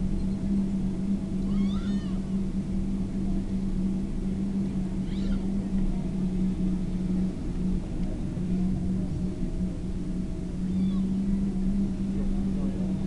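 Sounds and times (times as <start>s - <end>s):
aircraft cabin drone: 0.0s - 13.0s
wavering high squeaks: 5.0s - 5.5s, 10.6s - 11.2s.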